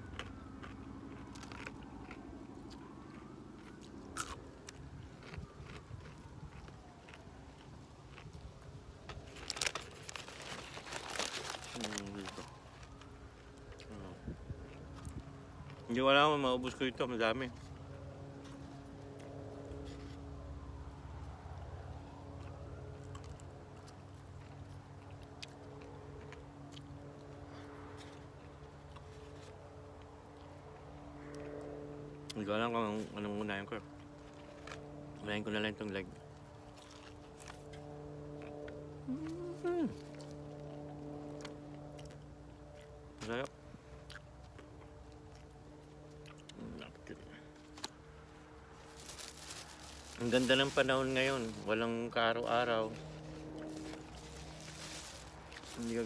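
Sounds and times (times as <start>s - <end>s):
crispy fried chicken crackling: 0.0s - 16.0s, 46.9s - 51.8s, 52.8s - 56.0s
crunchy chewing of fried chicken: 0.0s - 56.0s
steady low hum: 0.0s - 56.0s.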